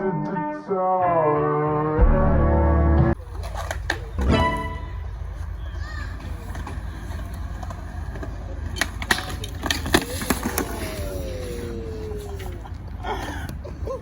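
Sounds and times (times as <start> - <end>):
bike rolling on concrete: 3.2 - 14.0.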